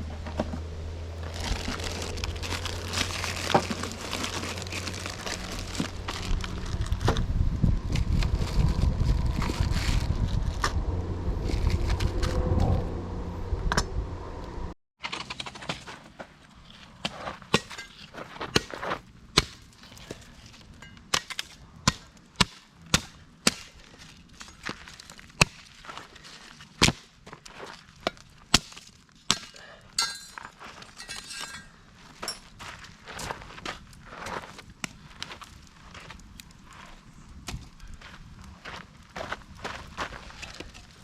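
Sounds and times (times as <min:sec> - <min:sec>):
wind on microphone: 0:03.3 - 0:14.7.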